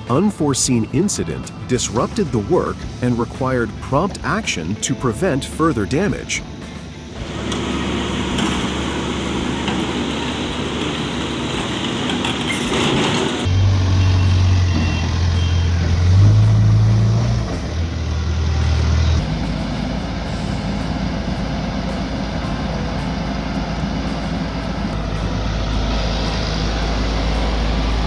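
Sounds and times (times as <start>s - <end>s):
heavy diesel engines working: 0.0s - 28.0s
deep engine drone revving: 6.4s - 28.0s.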